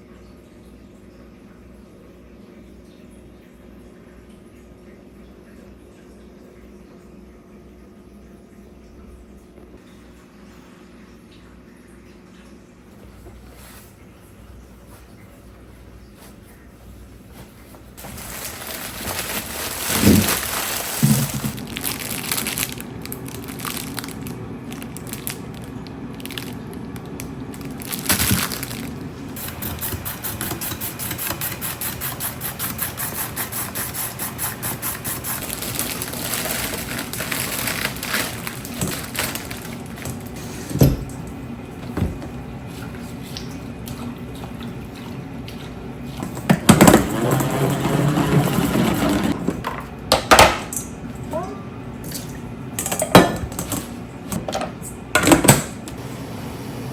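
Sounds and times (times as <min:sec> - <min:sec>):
steady background hum: 0:00.0 - 0:56.9
containers and utensils clattering: 0:18.0 - 0:41.2, 0:41.8 - 0:50.9.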